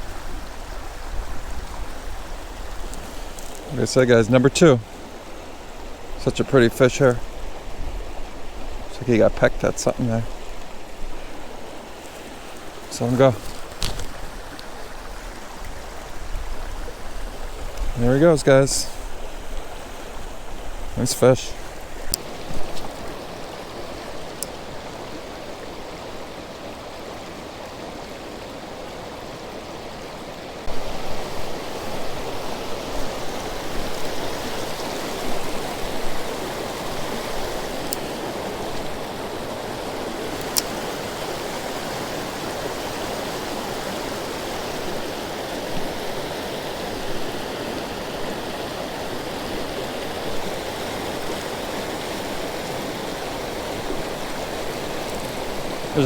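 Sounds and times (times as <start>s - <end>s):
creek water rushing: 0.0s - 56.0s
faint sharp ticks: 40.4s - 40.8s.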